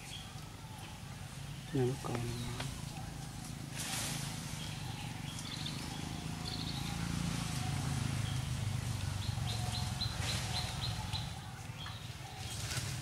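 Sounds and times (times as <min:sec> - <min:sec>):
bird chirping: 0:04.5 - 0:12.9.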